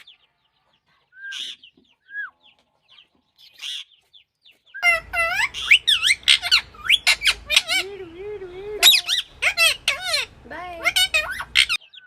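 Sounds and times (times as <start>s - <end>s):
parrot shrill screeches: 4.8s - 7.9s, 8.8s - 11.8s
parrot squawking: 4.8s - 12.0s.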